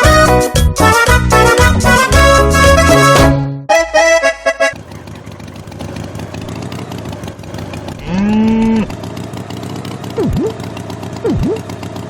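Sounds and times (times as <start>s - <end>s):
accordion music: 0.0s - 4.8s
engine-like rumble: 4.4s - 12.0s
cow mooing: 8.0s - 8.9s.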